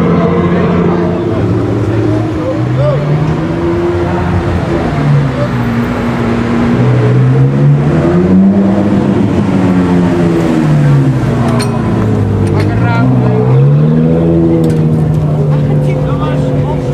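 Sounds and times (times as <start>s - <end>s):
sports car engines revving: 0.0s - 16.9s.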